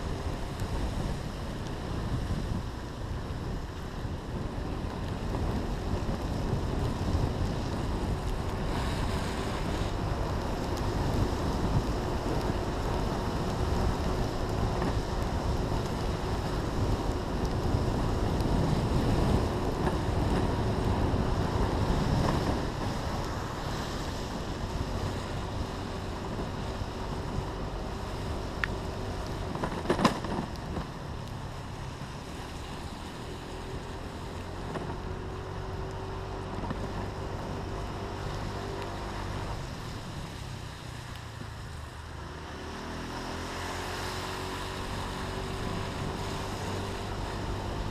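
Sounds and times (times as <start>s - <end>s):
wind buffeting microphone: 0.0s - 40.4s.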